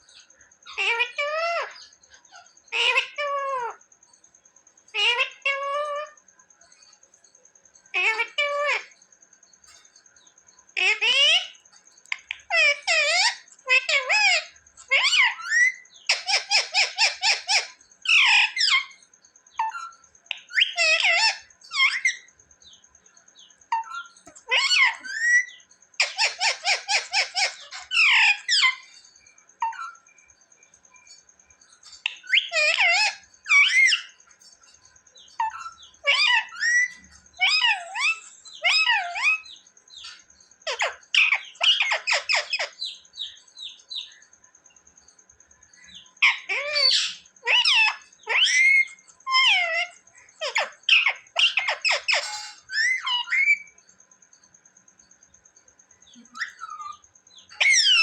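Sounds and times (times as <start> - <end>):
parrot screeching and squawking: 0.7 - 3.8, 5.0 - 6.2, 8.0 - 8.9, 10.8 - 19.0, 19.6 - 22.3, 23.7 - 28.9, 32.0 - 34.2, 35.4 - 39.6, 40.7 - 43.0, 46.2 - 53.7, 56.4 - 58.0.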